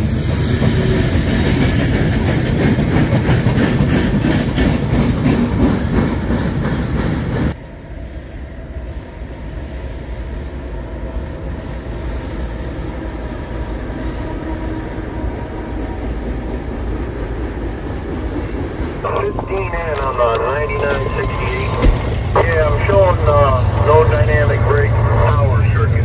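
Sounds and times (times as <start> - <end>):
diesel locomotives rumbling: 0.0 - 26.0
train wheels squealing: 2.7 - 7.6, 8.9 - 15.0, 19.1 - 24.5.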